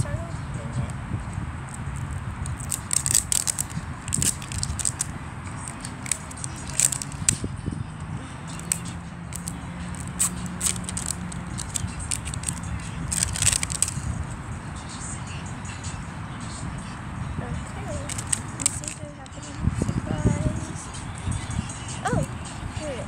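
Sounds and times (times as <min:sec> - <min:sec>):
plastic wrapping crinkling: 0:02.0 - 0:07.4, 0:08.5 - 0:14.1, 0:18.0 - 0:19.0.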